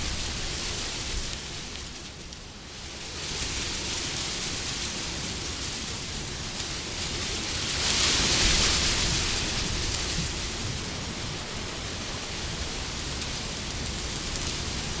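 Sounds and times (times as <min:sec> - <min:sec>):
rushing wind: 0:00.0 - 0:01.9, 0:02.9 - 0:15.0.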